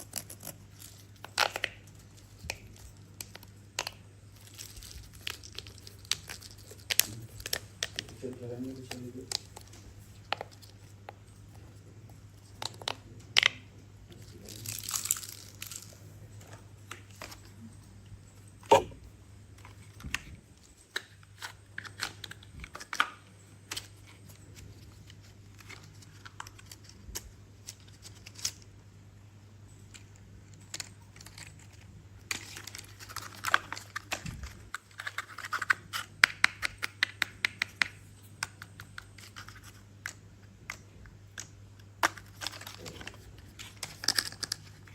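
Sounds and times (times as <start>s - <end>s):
crinkly rustling: 4.2s - 12.8s, 29.9s - 36.0s, 42.0s - 44.9s.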